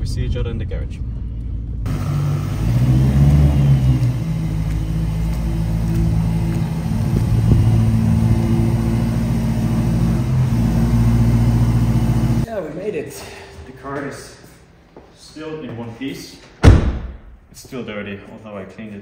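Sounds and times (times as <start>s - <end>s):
car engine rumbling at low revs: 0.0s - 12.5s.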